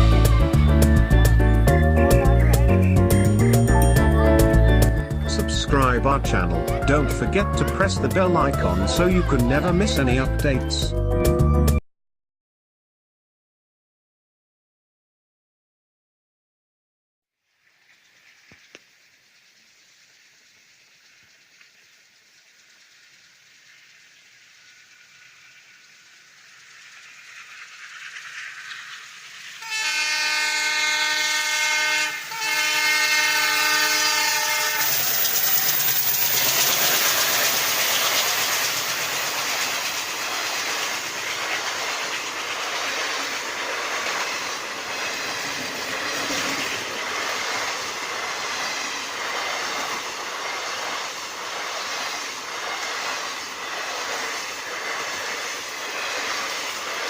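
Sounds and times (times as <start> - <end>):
train rumbling: 0.0 - 11.8, 23.6 - 57.0
train horn blasts: 29.6 - 35.1
wheels clattering over rail joints: 34.8 - 57.0.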